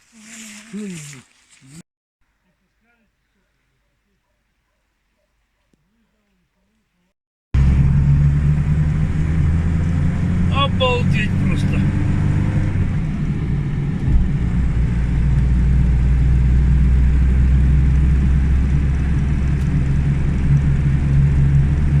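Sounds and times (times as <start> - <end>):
deep drone: 7.6 - 22.0
vehicle engine rumble: 7.6 - 22.0.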